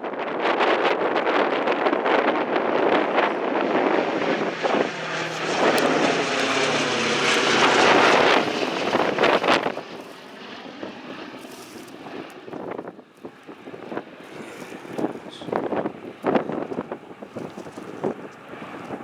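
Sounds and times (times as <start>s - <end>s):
propeller aircraft engines droning: 0.0s - 19.0s
wind buffeting microphone: 0.0s - 19.0s.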